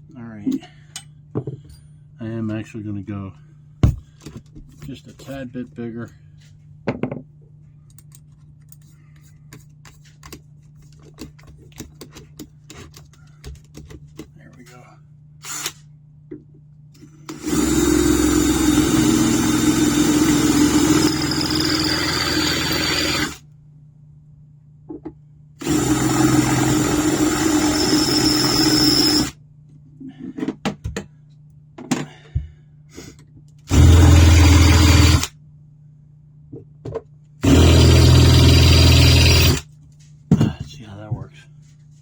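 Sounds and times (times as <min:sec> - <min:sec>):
electric drill running: 0:17.3 - 0:23.4, 0:25.6 - 0:29.4, 0:33.7 - 0:35.3, 0:37.4 - 0:39.6.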